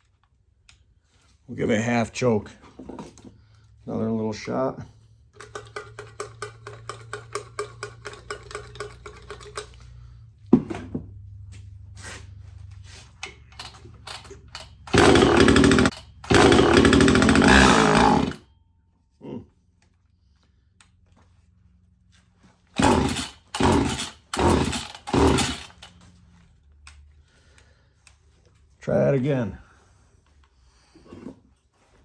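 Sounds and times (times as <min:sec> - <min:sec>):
chainsaw engine firing and dying: 0:05.4 - 0:09.8, 0:13.5 - 0:18.5, 0:22.8 - 0:26.0
chainsaw pull-start clicking: 0:05.4 - 0:09.9, 0:13.2 - 0:18.4, 0:22.8 - 0:26.1.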